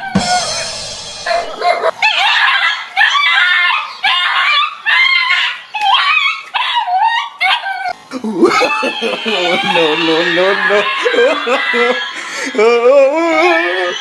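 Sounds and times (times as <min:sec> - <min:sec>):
harsh noisy sound: 0:00.0 - 0:01.9
dog barking and yelping: 0:00.0 - 0:12.5.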